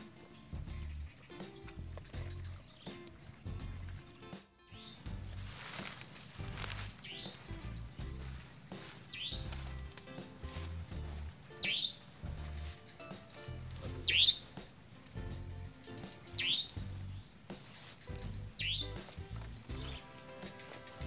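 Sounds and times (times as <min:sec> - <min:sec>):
crickets droning: 0:00.0 - 0:21.0
soft background music: 0:00.0 - 0:21.0
bird whistled call: 0:09.1 - 0:09.5, 0:11.5 - 0:13.2, 0:14.0 - 0:14.7, 0:15.8 - 0:19.0.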